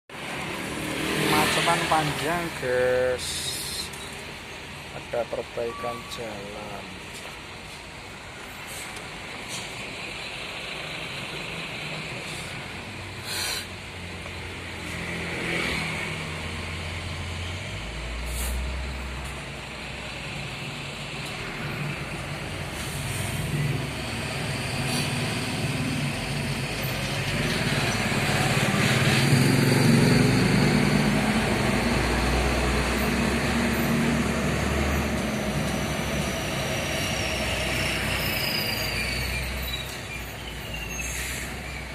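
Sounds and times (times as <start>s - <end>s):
heavy truck engines: 0.1s - 41.9s
short air hisses: 13.2s - 13.7s, 18.2s - 18.6s.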